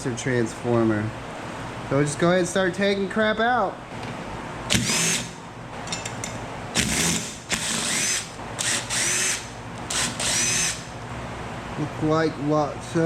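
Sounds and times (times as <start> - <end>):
power drill whining: 4.7 - 5.3, 6.8 - 10.9.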